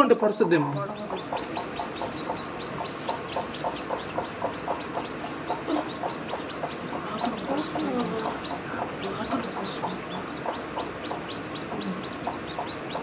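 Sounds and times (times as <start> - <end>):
chickens clucking: 0.0 - 13.0
chicks peeping: 0.0 - 13.0
hen calling: 0.2 - 13.0.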